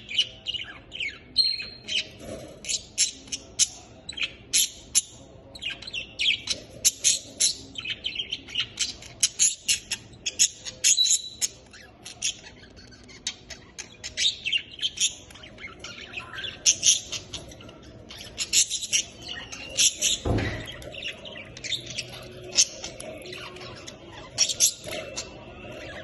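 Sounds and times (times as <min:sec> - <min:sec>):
budgerigars chirping: 0:00.0 - 0:26.0
brief thump: 0:20.2 - 0:20.8.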